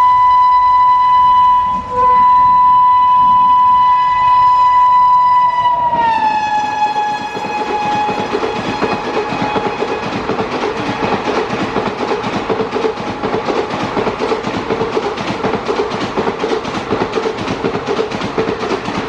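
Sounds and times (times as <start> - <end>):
train horn blast: 0.0 - 11.8
train coaches rattling on rails: 0.0 - 19.0.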